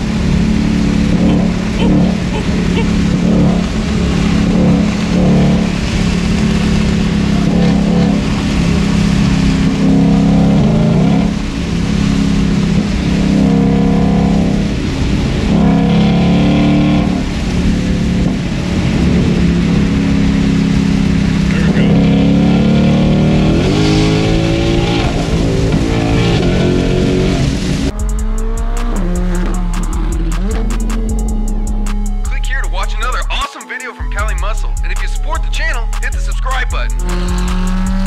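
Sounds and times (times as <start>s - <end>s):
loud car engine revving: 0.0s - 33.4s, 34.2s - 38.0s.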